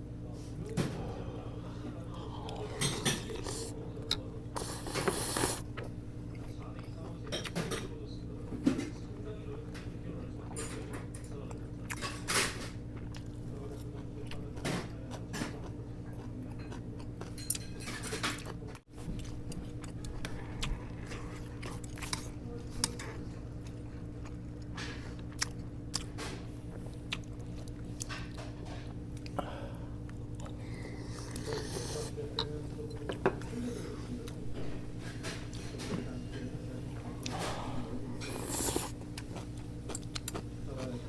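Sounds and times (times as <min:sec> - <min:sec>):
person chewing food: 0:02.2 - 0:07.3, 0:18.4 - 0:28.4, 0:30.0 - 0:33.2, 0:38.2 - 0:40.5.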